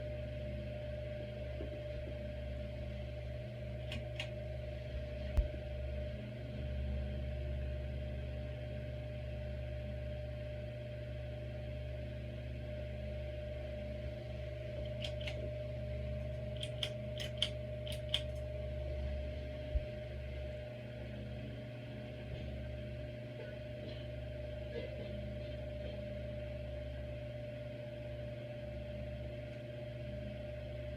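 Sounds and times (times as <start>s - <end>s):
ceiling fan motor humming: 0.0s - 30.9s
sharp click: 3.8s - 4.3s.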